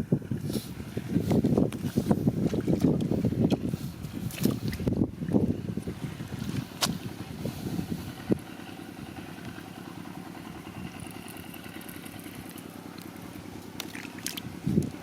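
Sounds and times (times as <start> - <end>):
small engine running: 5.4 - 15.0.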